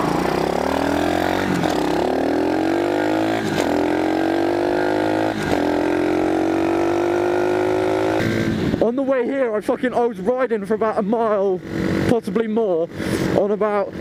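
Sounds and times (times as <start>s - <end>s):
motorbike engine accelerating: 0.0s - 8.9s.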